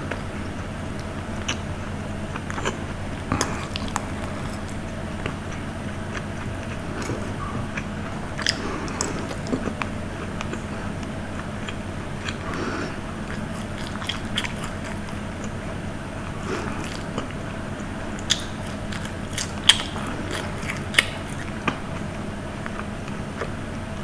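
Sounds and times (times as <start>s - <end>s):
person chewing food: 0.0s - 23.6s
steady low hum: 0.0s - 24.0s.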